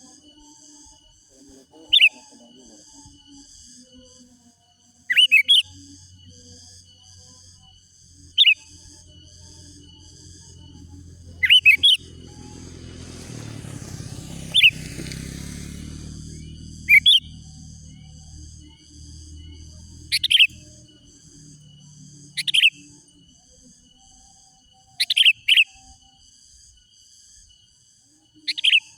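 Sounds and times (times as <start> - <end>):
low hum: 5.7 - 24.2
bulbul calling: 8.2 - 23.0.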